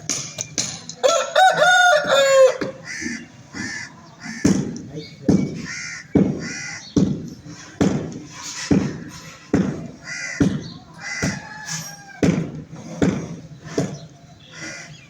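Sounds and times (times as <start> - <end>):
chickens squawking: 1.0 - 7.8, 8.5 - 15.0
repeating knocks: 4.4 - 11.4.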